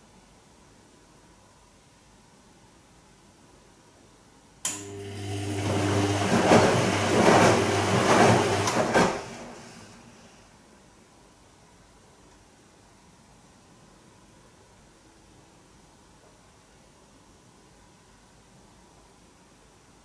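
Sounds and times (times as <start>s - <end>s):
washing machine motor humming: 4.7s - 10.4s
laundry tumbling in drum: 5.7s - 9.7s.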